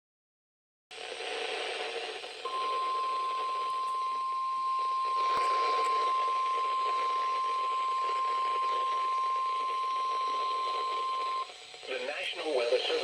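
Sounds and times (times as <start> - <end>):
radio static hiss: 0.9 - 13.0
steady single-pitch alarm tone: 2.5 - 11.5.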